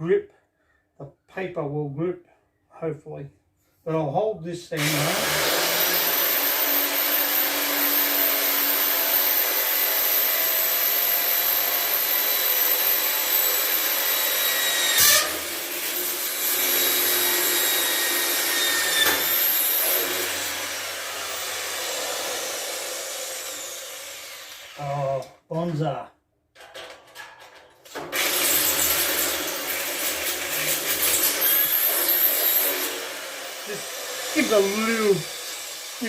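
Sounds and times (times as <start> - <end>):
electric drill boring through metal: 4.8 - 24.8, 27.9 - 36.0.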